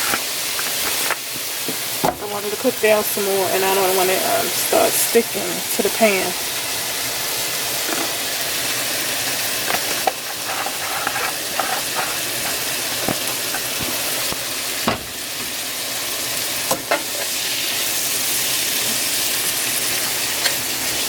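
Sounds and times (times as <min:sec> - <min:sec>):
vegetables sizzling in oil: 0:00.0 - 0:21.0
utensil scraping a pan: 0:09.3 - 0:14.4.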